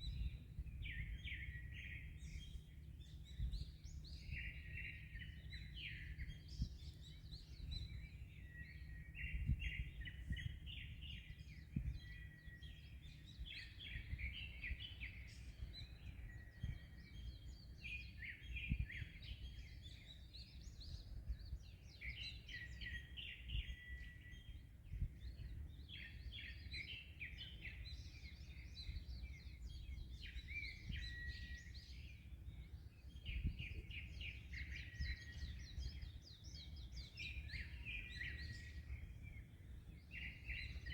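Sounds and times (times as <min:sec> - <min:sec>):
small birds chirping: 0:00.0 - 0:40.9
wind buffeting microphone: 0:00.0 - 0:40.9.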